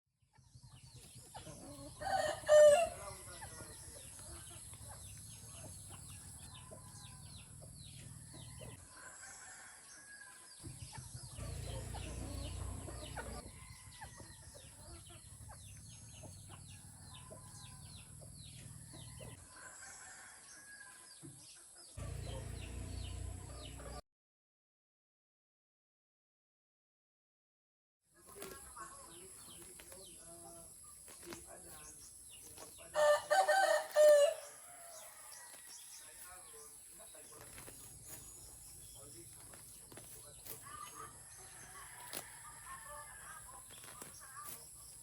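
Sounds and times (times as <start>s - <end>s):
small birds chirping: 0.4s - 9.1s, 9.9s - 19.6s, 21.4s - 24.0s, 28.2s - 45.0s
rooster crowing: 1.9s - 3.3s, 32.9s - 36.2s.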